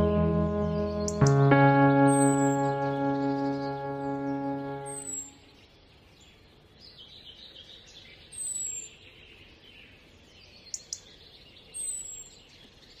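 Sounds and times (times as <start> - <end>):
birds twittering: 0.0 - 5.6.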